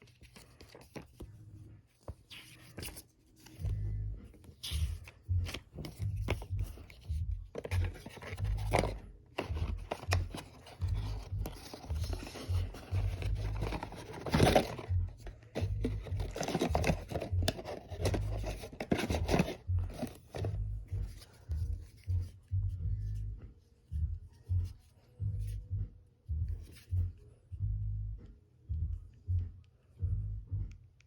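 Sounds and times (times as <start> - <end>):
cardboard packaging rustling: 4.4 - 22.0
cardboard scraping: 4.4 - 22.0.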